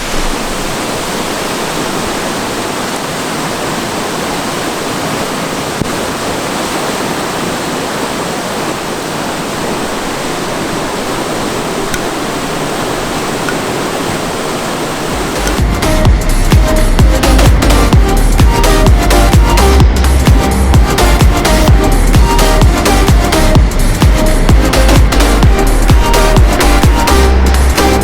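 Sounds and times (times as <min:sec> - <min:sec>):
rushing water: 0:00.0 - 0:28.0
electronic dance music: 0:15.1 - 0:28.0.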